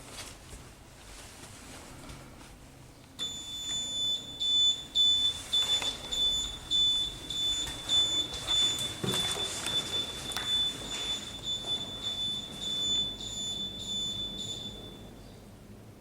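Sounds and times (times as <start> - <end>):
elevator buzzer beeping: 3.2 - 15.2.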